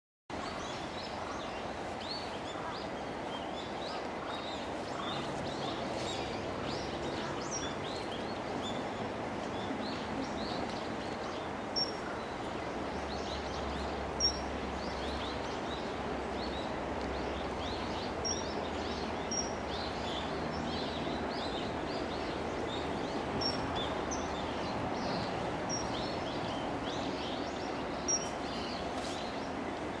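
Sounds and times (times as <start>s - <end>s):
small birds chirping: 9.6s - 30.0s.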